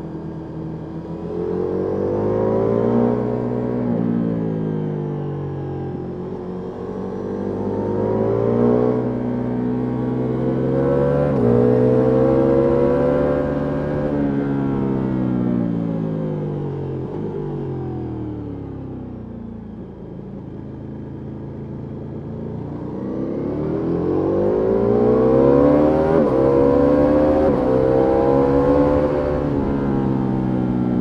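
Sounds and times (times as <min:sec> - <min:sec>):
motorcycle engine revving: 0:06.0 - 0:15.2, 0:22.0 - 0:31.0.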